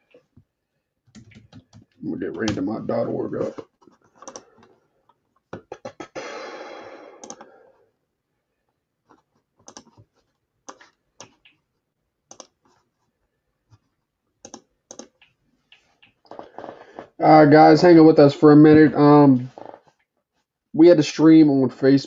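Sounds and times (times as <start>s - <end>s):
keyboard keystrokes: 1.1s - 2.6s, 4.2s - 4.5s, 7.2s - 7.5s.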